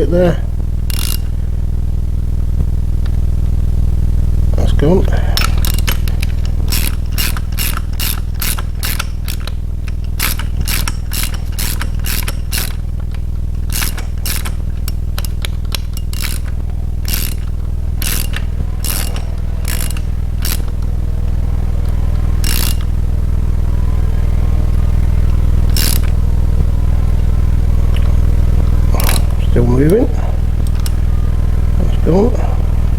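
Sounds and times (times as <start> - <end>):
steady low hum: 0.0 - 32.9
socket ratchet clicking: 0.8 - 1.4, 5.3 - 21.0, 21.8 - 23.0, 25.7 - 26.2, 30.6 - 31.0.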